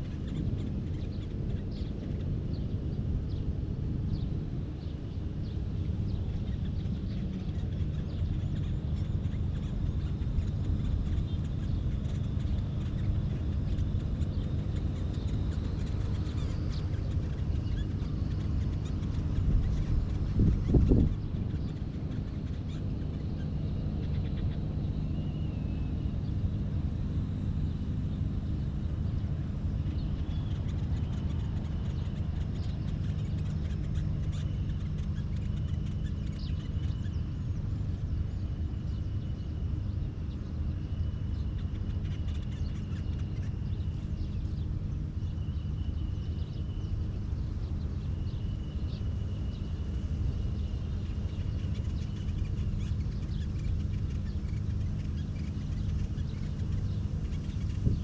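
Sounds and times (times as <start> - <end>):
steady low rumble: 0.0 - 58.0.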